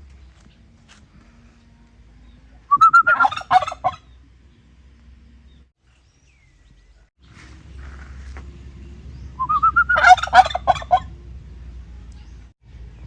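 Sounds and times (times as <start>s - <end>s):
turkey gobbling: 2.7s - 4.2s, 9.4s - 11.2s.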